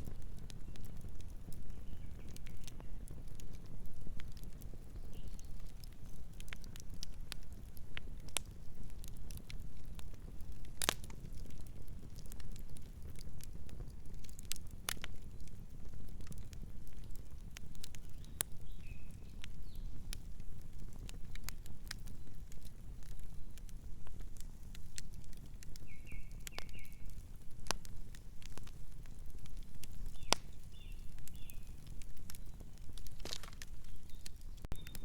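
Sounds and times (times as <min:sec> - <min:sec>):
campfire crackling and popping: 0:00.0 - 0:35.0.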